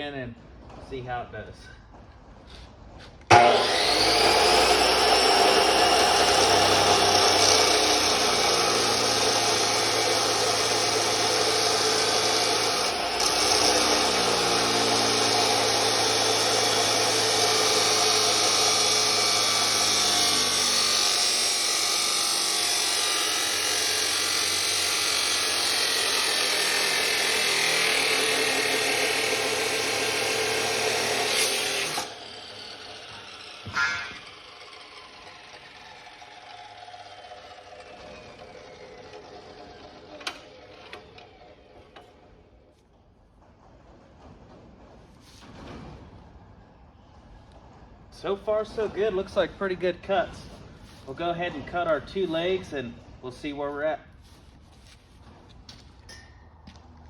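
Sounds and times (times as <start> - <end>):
chop saw grinding through metal: 3.3 - 42.3.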